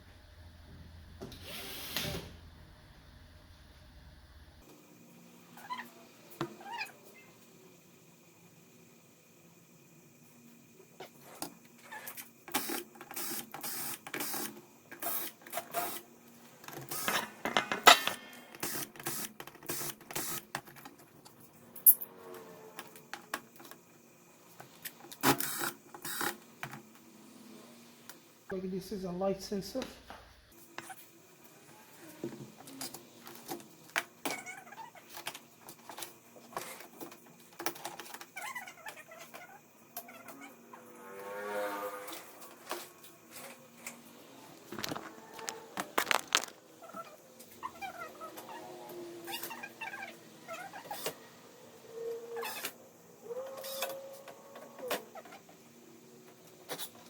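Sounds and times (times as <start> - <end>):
clicks and knocks of small parts: 44.7 - 46.6.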